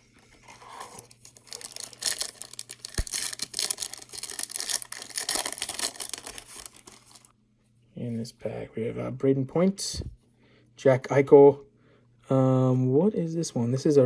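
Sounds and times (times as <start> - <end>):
foil wrapper tearing and crinkling: 0.4 - 7.3.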